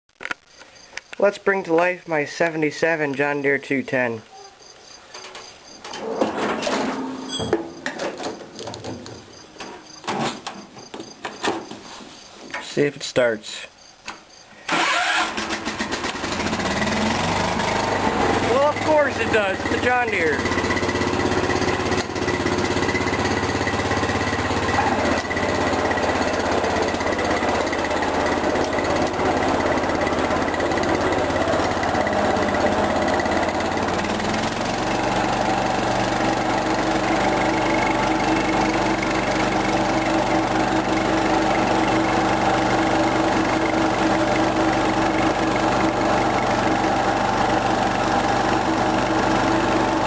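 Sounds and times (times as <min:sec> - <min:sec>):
single-cylinder engine running: 0:14.7 - 0:50.0.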